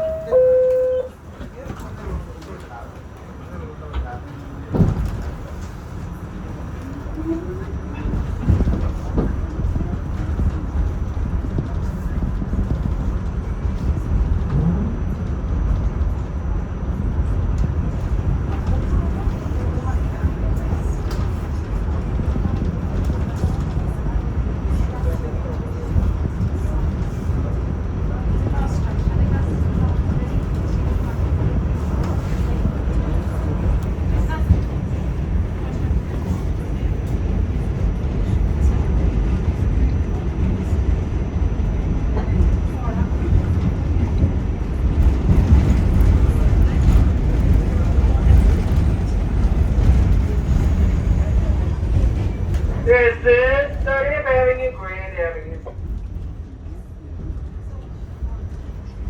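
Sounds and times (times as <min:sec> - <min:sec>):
faint high steady tone: 0:00.0 - 0:01.2
subway train rumbling: 0:00.0 - 0:59.0.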